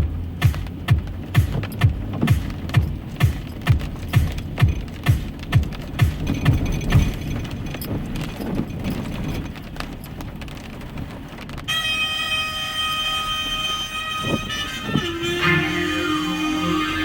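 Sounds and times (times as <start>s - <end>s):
low thumps: 0.0s - 9.6s
road and tyre hiss in rain: 0.0s - 17.0s
chord of steady high tones: 11.8s - 17.0s.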